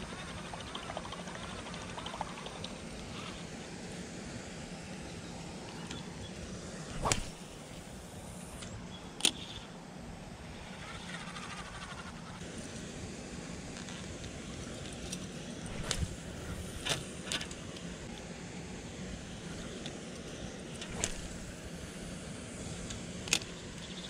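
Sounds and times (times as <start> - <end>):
outdoor background: 0.0 - 24.0
fishing rod swishing through air: 6.9 - 8.0, 15.7 - 17.4, 20.8 - 21.6
sharp click: 7.0 - 7.6, 20.8 - 21.5.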